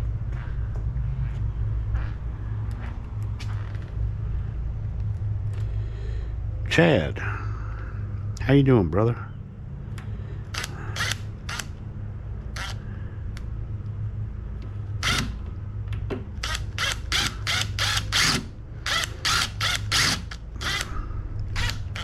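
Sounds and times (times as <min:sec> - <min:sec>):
steady low hum: 0:00.0 - 0:22.0
sharp clicks: 0:10.0 - 0:11.7.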